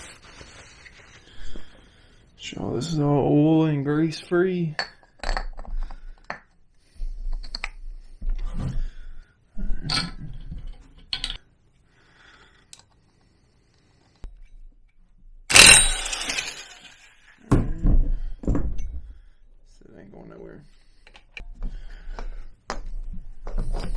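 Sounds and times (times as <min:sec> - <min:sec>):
loud metallic clank: 0:15.5 - 0:17.1
metal tools clattering: 0:15.5 - 0:17.1.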